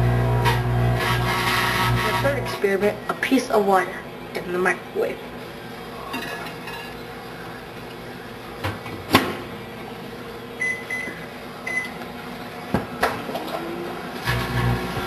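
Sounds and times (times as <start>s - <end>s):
microwave humming: 0.0s - 15.0s
microwave keypad beeps: 10.6s - 12.0s.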